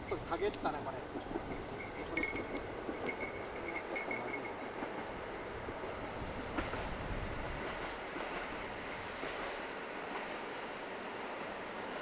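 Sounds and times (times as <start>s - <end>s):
metallic ringing of wheels on rails: 0.0s - 12.0s
train rumbling on track: 0.0s - 12.0s.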